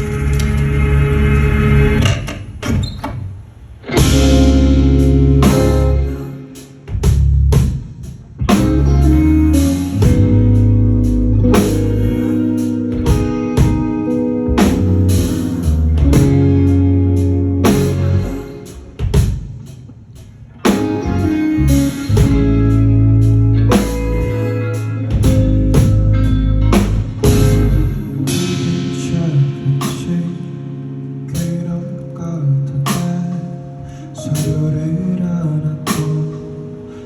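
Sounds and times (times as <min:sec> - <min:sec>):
live band playing: 0:03.8 - 0:31.8, 0:35.9 - 0:37.0.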